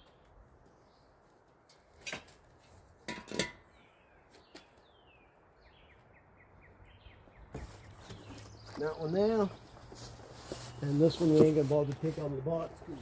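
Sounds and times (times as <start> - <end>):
metallic clinks of exhaust parts: 3.1 - 3.7
birds chirping: 3.6 - 13.0.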